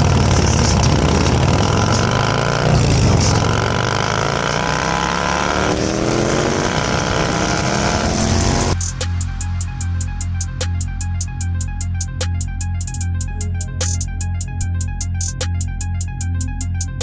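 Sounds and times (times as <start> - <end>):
motorcycle engine accelerating: 0.0 - 8.8.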